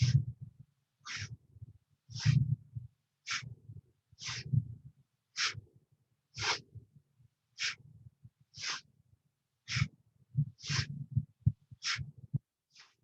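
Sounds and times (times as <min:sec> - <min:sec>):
forceful breaths in and out: 0:03.2 - 0:06.8, 0:07.5 - 0:08.9, 0:09.6 - 0:13.0.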